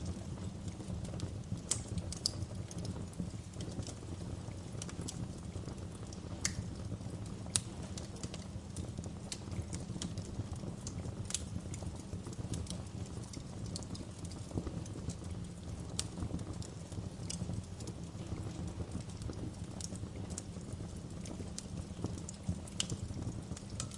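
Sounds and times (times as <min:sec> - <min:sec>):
wood fire crackling: 0:00.0 - 0:23.9.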